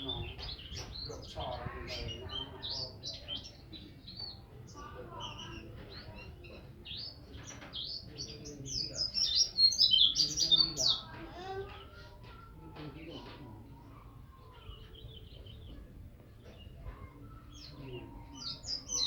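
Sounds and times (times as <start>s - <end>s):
songbird chirping: 0.0s - 19.0s.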